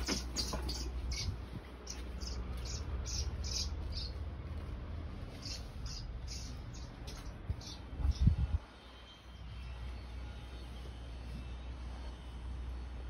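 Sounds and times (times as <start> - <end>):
small bird chirping: 0.0 - 4.6, 5.3 - 10.8.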